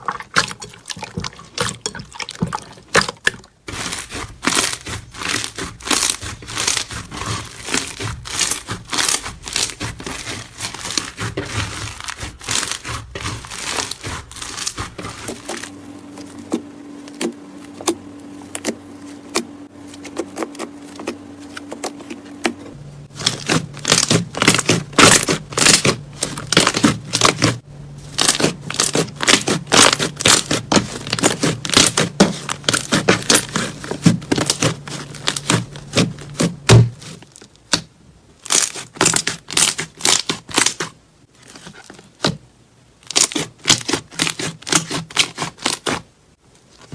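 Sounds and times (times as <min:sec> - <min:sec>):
faint steady hum: 0:00.0 - 0:38.5
slime crackling and popping: 0:03.7 - 0:18.7, 0:23.1 - 0:36.9.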